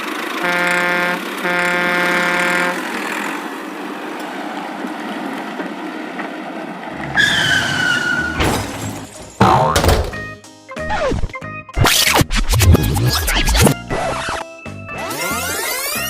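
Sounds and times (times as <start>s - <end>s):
rushing vehicle noise: 0.0s - 10.4s
cartoon horn honk: 0.4s - 2.9s
high falling squeal: 7.1s - 8.6s
sharp thump: 9.4s - 10.3s.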